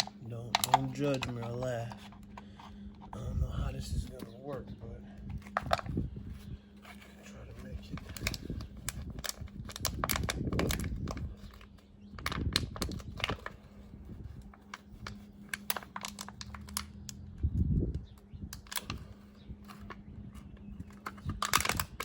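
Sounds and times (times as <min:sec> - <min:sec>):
handling clicks and taps: 0:00.0 - 0:03.2
steady low hum: 0:00.0 - 0:22.0.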